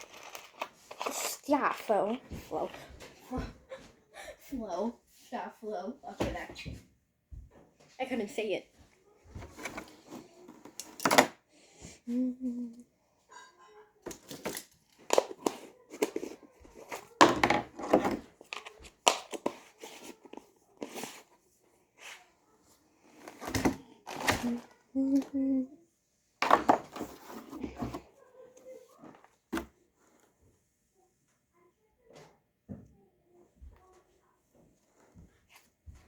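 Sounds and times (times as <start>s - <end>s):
crinkling and rubbing handling noise: 0.0s - 4.0s, 6.0s - 11.4s, 14.0s - 25.2s, 26.4s - 31.4s
person humming: 12.1s - 12.8s, 24.5s - 25.8s.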